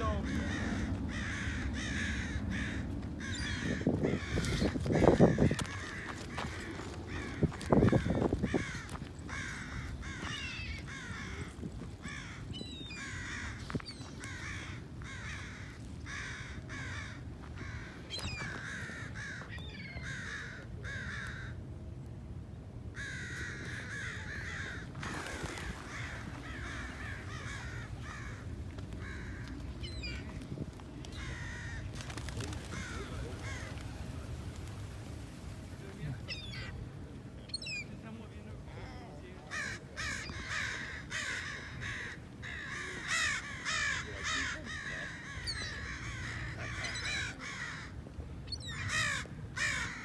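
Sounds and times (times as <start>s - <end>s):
birds alarm calling: 0.0s - 11.2s, 23.0s - 30.4s, 36.2s - 36.8s.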